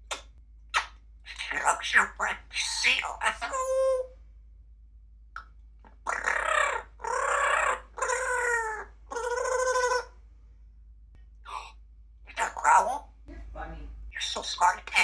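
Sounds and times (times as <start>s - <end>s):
parrot calling: 0.1s - 4.1s, 5.8s - 10.2s, 12.3s - 15.0s.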